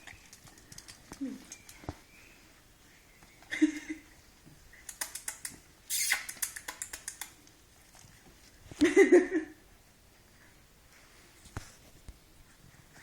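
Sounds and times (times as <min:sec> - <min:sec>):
claws clicking and scratching: 0:00.0 - 0:02.0, 0:04.7 - 0:08.2
puppy squealing: 0:05.9 - 0:06.7.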